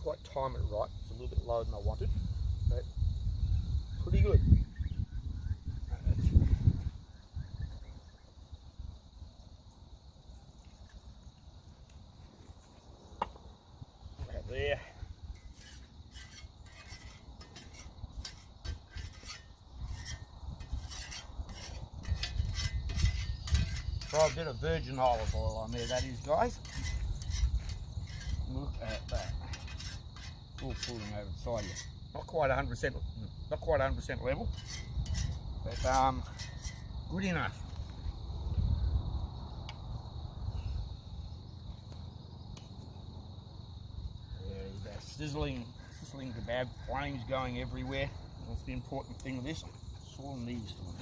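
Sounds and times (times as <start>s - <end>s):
crickets chirring: 0.0s - 51.0s
cooking gear scraping and clicking: 15.3s - 32.0s, 34.5s - 36.9s.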